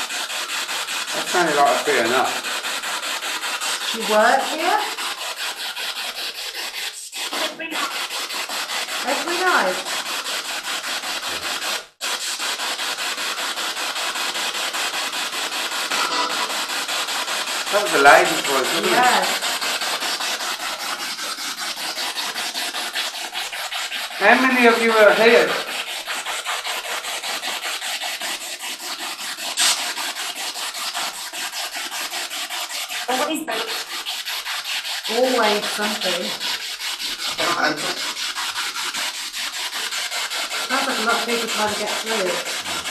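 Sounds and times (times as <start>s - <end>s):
radio static hiss: 15.9s - 16.6s
rapid radio pulsing: 15.9s - 16.8s, 17.7s - 19.4s.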